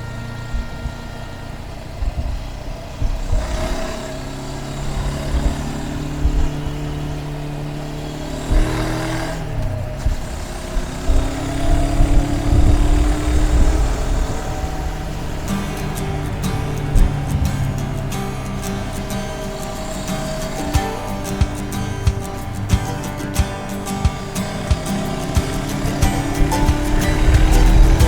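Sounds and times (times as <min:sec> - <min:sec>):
motorcycle engine running: 0:00.0 - 0:28.0
wind noise on microphone: 0:09.7 - 0:19.0.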